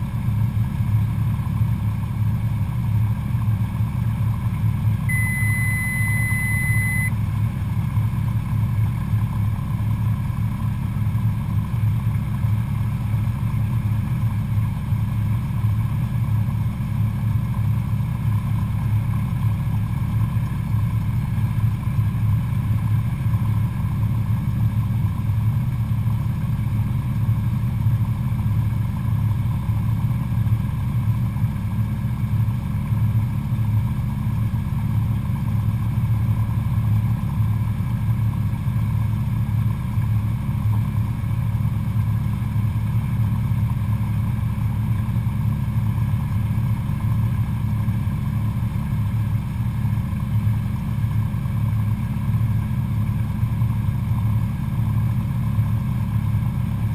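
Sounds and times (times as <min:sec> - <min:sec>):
propeller plane engine droning: 0:00.0 - 0:56.9
high steady beep: 0:05.1 - 0:07.2.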